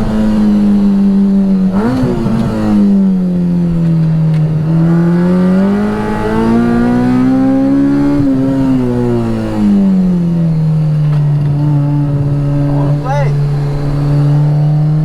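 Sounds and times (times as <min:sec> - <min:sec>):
car engine revving hard: 0:00.0 - 0:15.0.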